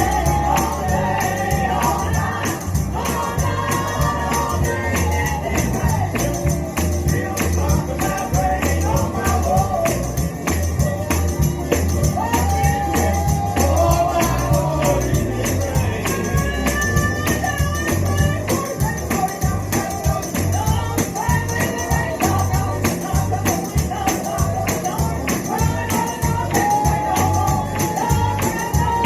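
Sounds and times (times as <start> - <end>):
backing voices singing: 0.0 - 29.0
band with deep bass line: 0.0 - 29.0
tambourine beat: 0.0 - 29.0
woman singing lead: 12.2 - 29.0.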